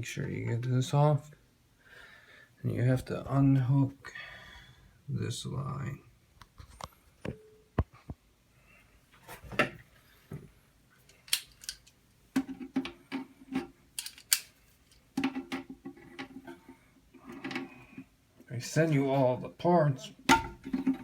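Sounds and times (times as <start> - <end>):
plastic parts rattling: 11.0 - 16.6
plastic toilet parts clicking: 11.0 - 18.0, 20.3 - 21.0.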